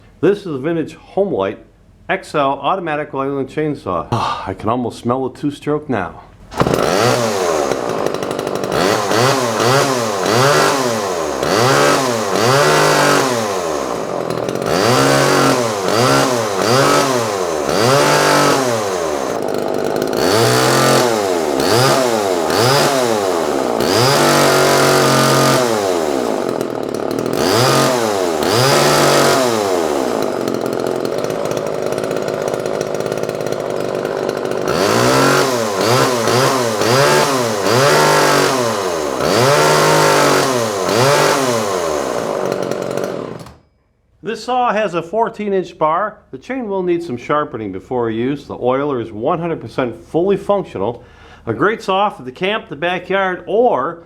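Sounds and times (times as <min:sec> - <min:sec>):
chainsaw engine revving: 0:06.4 - 0:43.6.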